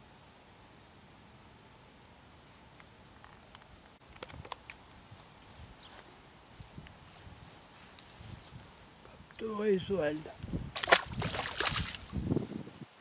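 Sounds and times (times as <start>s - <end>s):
small bird chirping: 3.9s - 10.5s, 12.1s - 12.6s.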